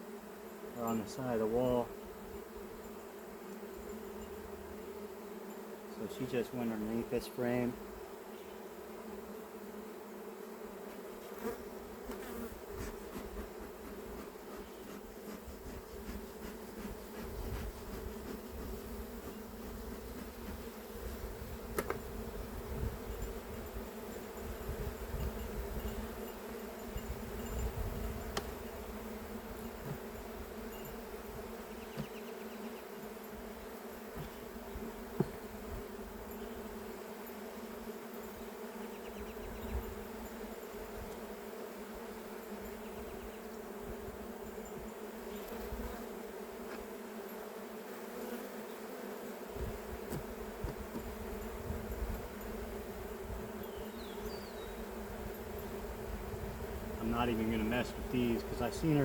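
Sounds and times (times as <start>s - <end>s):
honeybee colony buzzing: 0.0s - 59.0s.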